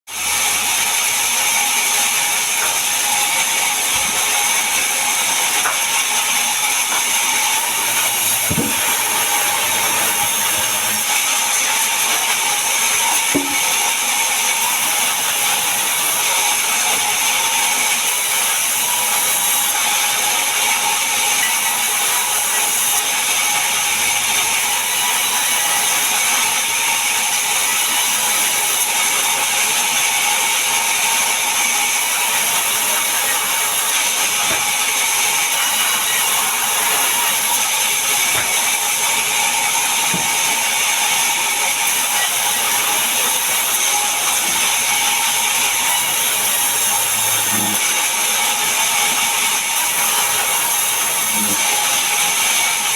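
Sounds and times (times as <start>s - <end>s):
power saw cutting wood: 0.1s - 52.9s.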